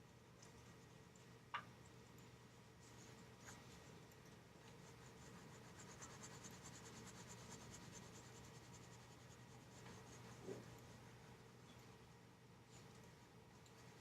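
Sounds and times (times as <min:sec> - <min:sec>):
pencil scratching on paper: 0:04.8 - 0:10.8.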